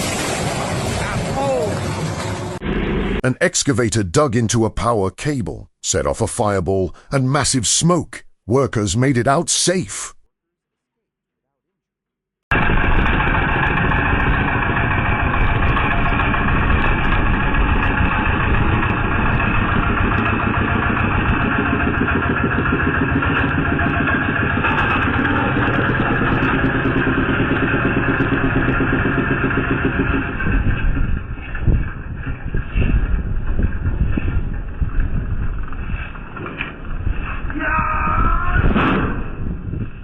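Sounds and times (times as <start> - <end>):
vehicle engine running: 12.5 - 37.3.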